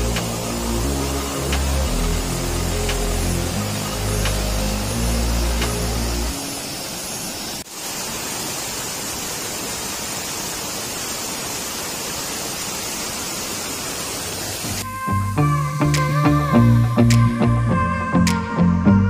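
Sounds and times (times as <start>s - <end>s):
music: 0.0s - 6.5s, 14.8s - 19.0s
waterfall rushing: 0.0s - 14.9s.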